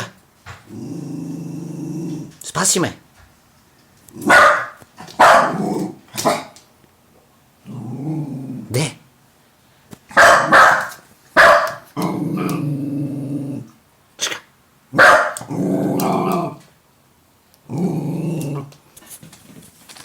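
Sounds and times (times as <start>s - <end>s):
dog growling: 0.0s - 2.4s, 5.4s - 6.6s, 7.6s - 9.0s, 11.9s - 13.8s, 14.9s - 16.7s, 17.6s - 18.8s
dog barking: 4.2s - 5.6s, 6.2s - 6.6s, 10.1s - 11.9s, 15.0s - 15.5s.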